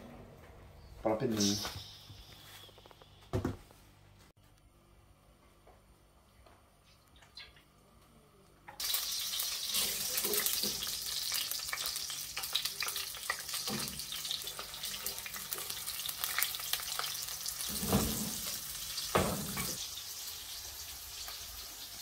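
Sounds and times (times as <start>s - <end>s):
onions sizzling in hot oil: 8.8s - 22.0s.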